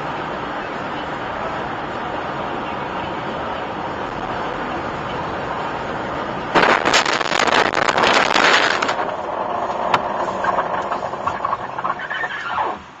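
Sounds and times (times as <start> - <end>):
car and road noise: 0.0 - 13.0
loud rushing burst: 6.5 - 11.2.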